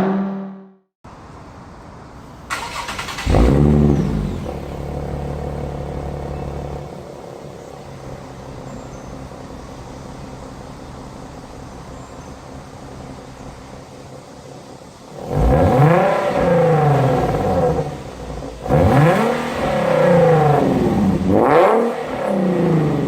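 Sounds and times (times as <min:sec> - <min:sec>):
car engine cranking: 0:02.3 - 0:08.7, 0:15.2 - 0:23.0
car engine revving and idling: 0:02.3 - 0:23.0.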